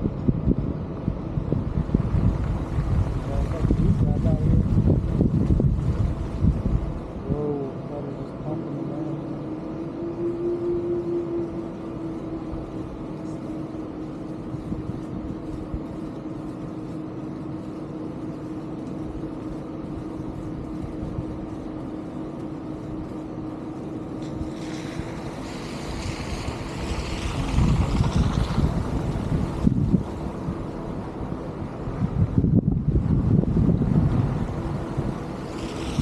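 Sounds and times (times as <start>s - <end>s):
wind buffeting microphone: 0.0s - 7.4s, 10.7s - 18.1s, 23.9s - 36.0s
steady motor hum: 0.0s - 36.0s
rushing noise: 24.2s - 36.0s.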